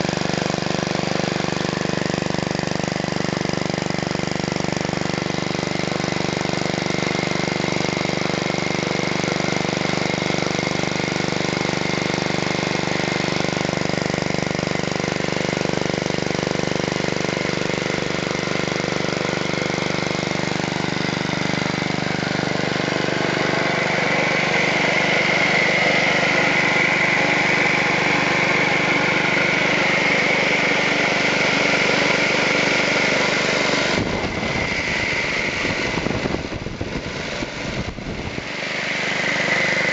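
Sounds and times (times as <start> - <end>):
engine running steadily: 0.0 - 39.9
buzz saw whine: 18.0 - 39.9.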